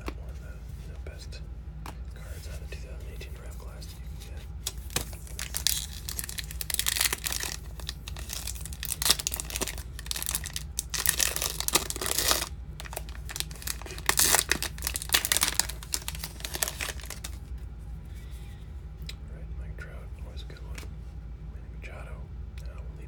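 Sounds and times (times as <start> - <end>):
cards and wrapper crinkling: 4.2 - 17.6.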